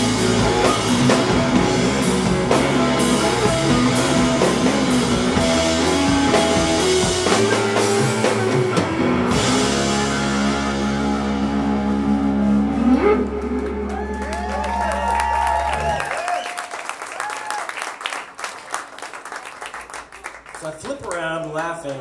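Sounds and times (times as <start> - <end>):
electric guitar chord ringing: 0.0 - 14.0
drum kit: 0.0 - 16.0.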